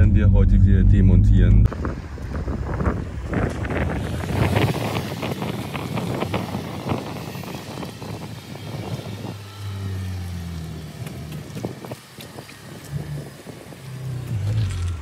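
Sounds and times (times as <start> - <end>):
rough wind noise: 0.0 - 9.5
low engine drone: 0.0 - 15.0.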